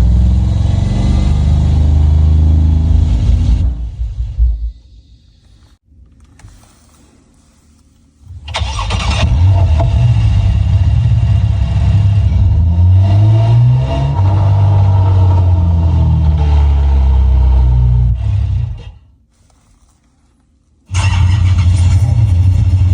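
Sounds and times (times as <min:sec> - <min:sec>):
artificial engine sound revving: 0:00.0 - 0:04.8, 0:08.5 - 0:19.0, 0:20.9 - 0:22.9.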